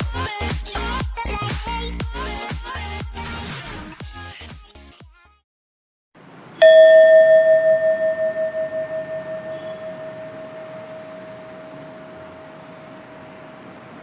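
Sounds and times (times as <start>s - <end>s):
struck bell-like chime: 6.6s - 13.4s.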